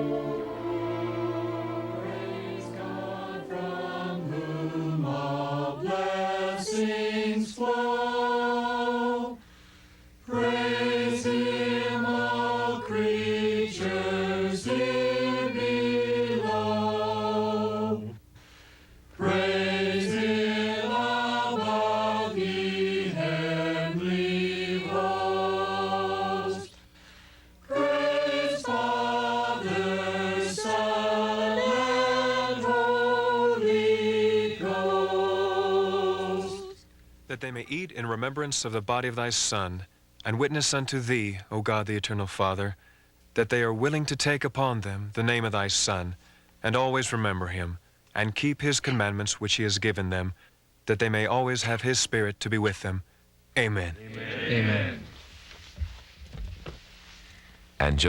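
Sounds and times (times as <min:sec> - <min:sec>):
choir singing: 0:00.0 - 0:09.4, 0:10.2 - 0:18.2, 0:19.2 - 0:26.8, 0:27.7 - 0:36.8, 0:54.0 - 0:55.1
short breaths: 0:09.4 - 0:10.2, 0:18.3 - 0:19.1, 0:26.7 - 0:27.6, 0:42.8 - 0:43.2, 0:46.2 - 0:46.6, 0:57.2 - 0:57.7.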